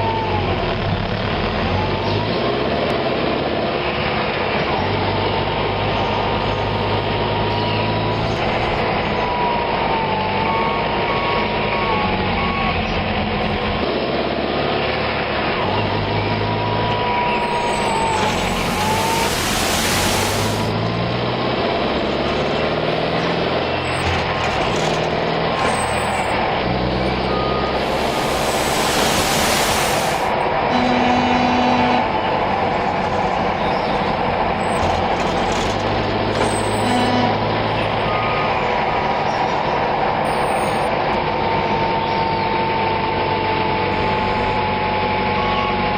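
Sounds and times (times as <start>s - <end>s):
truck engine running: 0.0s - 45.9s
air-brake hiss: 18.2s - 20.7s, 27.7s - 30.4s.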